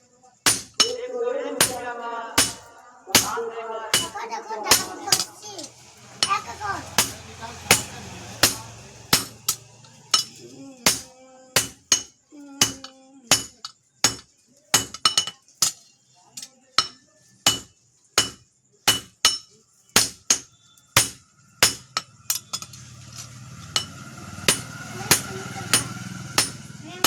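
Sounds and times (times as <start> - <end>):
hammer blows ringing on steel: 0.5 - 1.0, 1.6 - 1.8, 2.4 - 5.4, 6.2 - 15.8, 16.8 - 19.4, 20.0 - 22.8, 23.6 - 27.0.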